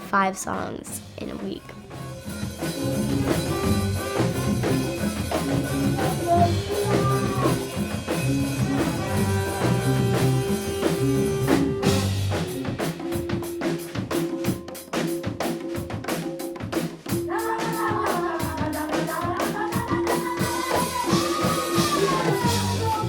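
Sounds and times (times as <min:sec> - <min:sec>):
bass line: 0:00.0 - 0:12.7, 0:22.4 - 0:23.0
band music: 0:00.0 - 0:15.1, 0:20.4 - 0:23.0
drum kit beat: 0:00.0 - 0:23.0.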